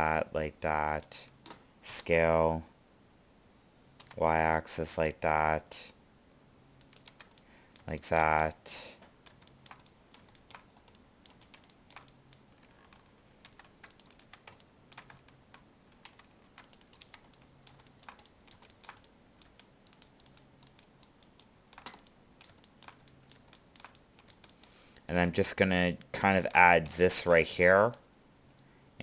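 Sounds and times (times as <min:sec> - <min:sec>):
low room hiss: 0:00.0 - 0:29.0
computer keyboard keys clicking: 0:06.8 - 0:08.4, 0:09.2 - 0:24.7.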